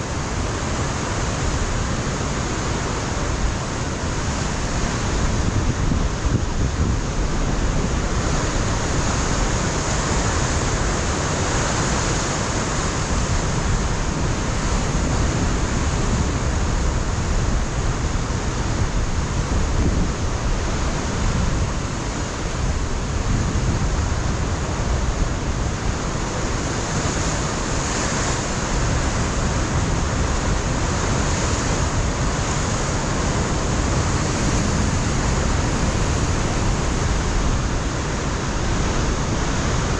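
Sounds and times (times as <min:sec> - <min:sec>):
wind buffeting microphone: 0:00.0 - 0:39.9
surf breaking on rocks: 0:20.4 - 0:39.9.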